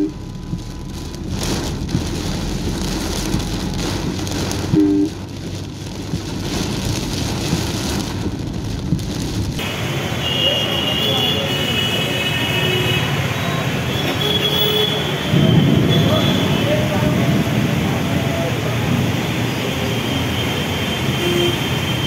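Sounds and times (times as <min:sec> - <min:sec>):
heavy rain on a car: 0:00.0 - 0:22.0
low road rumble: 0:00.0 - 0:22.0
two-tone car horn beep: 0:10.2 - 0:16.6.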